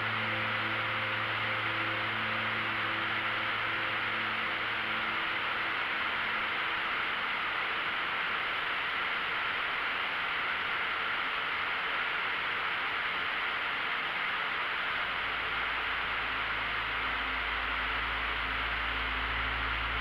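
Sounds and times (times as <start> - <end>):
soft background music: 0.0 - 9.4, 15.1 - 20.0.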